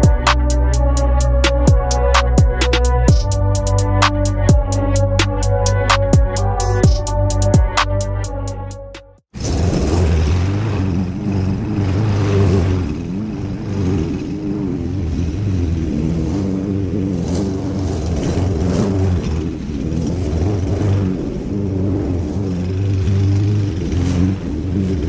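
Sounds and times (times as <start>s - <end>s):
small gasoline engine running: 9.4s - 25.0s.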